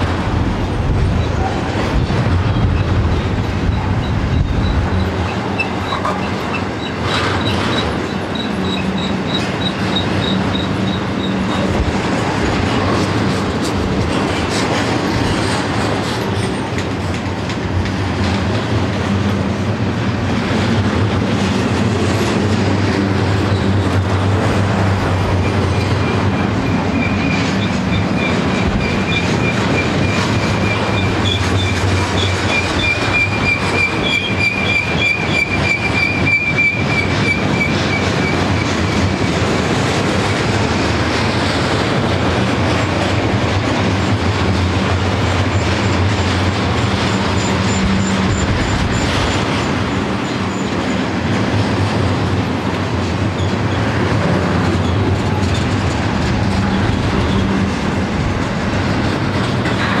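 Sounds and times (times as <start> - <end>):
steel wheels rolling on rail: 0.0 - 60.0
high wheel squeal: 3.7 - 11.7, 25.4 - 39.4, 46.8 - 50.9.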